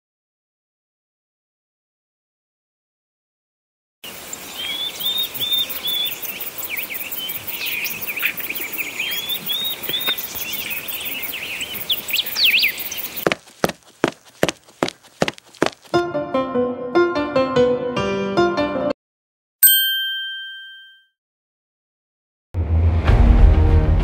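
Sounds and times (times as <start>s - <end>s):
outdoor hiss: 4.0s - 13.1s
birds chirping and whistling: 4.1s - 13.2s.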